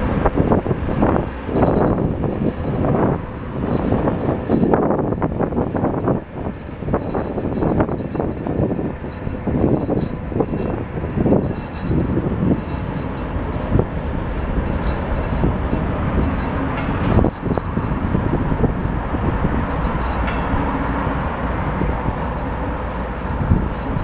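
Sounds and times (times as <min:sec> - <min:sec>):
train wagons rumbling over bridge: 0:00.0 - 0:24.0
metallic ring: 0:01.5 - 0:02.9, 0:05.8 - 0:18.0.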